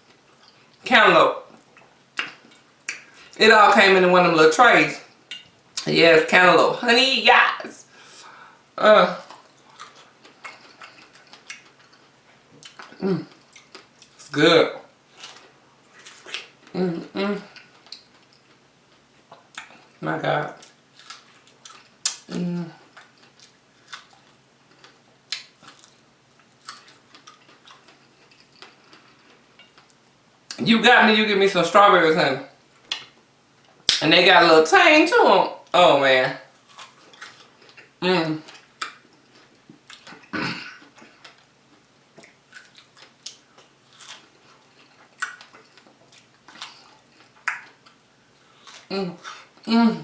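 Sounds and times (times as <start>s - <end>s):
chewing fruit mouth sounds: 9.2s - 14.2s, 15.2s - 18.6s, 20.6s - 30.6s, 36.5s - 50.0s
wet mouth smacks and clicks: 32.9s - 33.1s, 47.4s - 47.8s.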